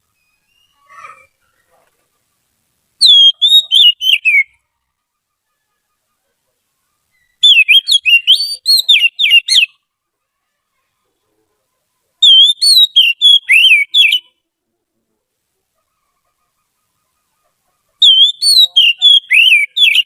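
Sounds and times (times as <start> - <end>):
bird singing warbling whistles: 0.2 - 1.3, 3.0 - 4.6, 7.1 - 9.8, 12.2 - 14.3, 18.0 - 20.0.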